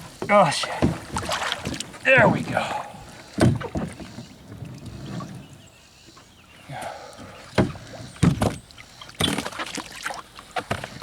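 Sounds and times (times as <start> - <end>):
kayak hull knocking: 0.0 - 2.8, 7.5 - 8.6.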